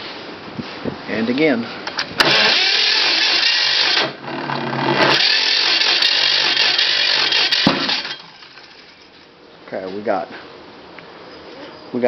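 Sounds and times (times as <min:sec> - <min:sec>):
tractor engine cranking and popping: 0:01.8 - 0:09.3.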